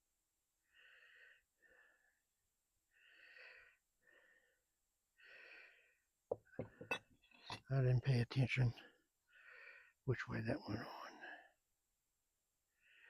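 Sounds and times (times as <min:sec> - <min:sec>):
man breathing with wheeze: 0:00.6 - 0:02.2, 0:02.9 - 0:07.0, 0:09.3 - 0:10.0, 0:12.7 - 0:13.0.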